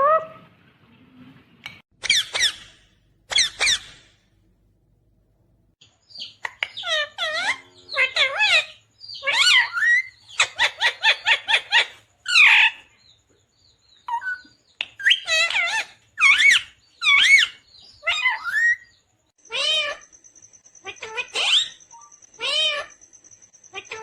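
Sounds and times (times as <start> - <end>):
parakeet chattering calls: 2.0 - 4.1, 6.1 - 12.8, 14.0 - 20.1, 20.7 - 23.0, 23.6 - 24.0
parakeet warbling calls: 2.0 - 4.1, 6.2 - 12.8, 19.4 - 20.1, 20.8 - 23.0.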